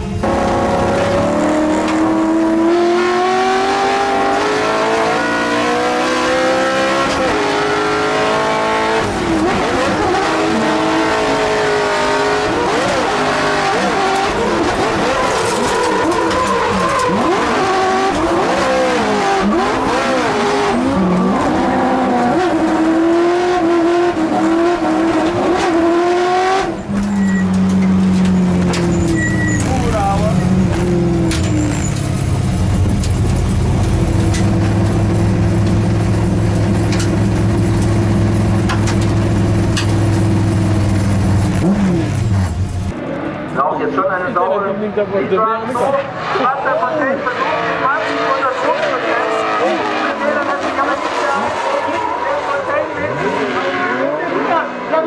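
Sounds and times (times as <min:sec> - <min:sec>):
car engine revving: 0:00.0 - 0:55.0
tyre squeal: 0:12.6 - 0:20.2, 0:26.8 - 0:30.2, 0:31.3 - 0:32.2.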